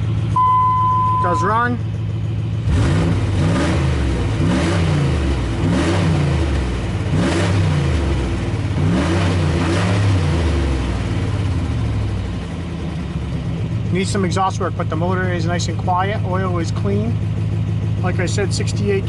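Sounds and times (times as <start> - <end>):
truck engine revving: 0.0 - 11.7.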